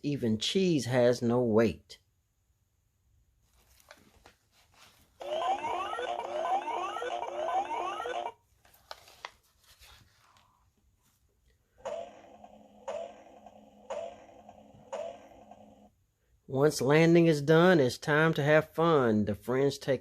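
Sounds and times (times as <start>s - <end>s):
faint clicks and rustles: 3.4s - 5.2s, 8.6s - 11.3s.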